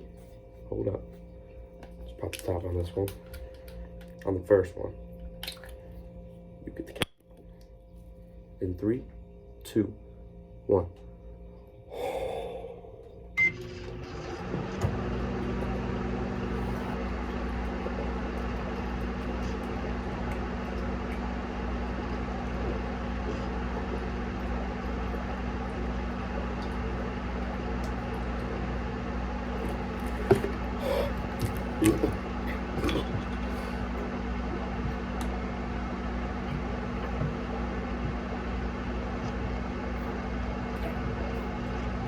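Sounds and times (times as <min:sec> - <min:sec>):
microwave oven humming: 0:00.0 - 0:42.0
microwave keypad beep: 0:13.4 - 0:13.7.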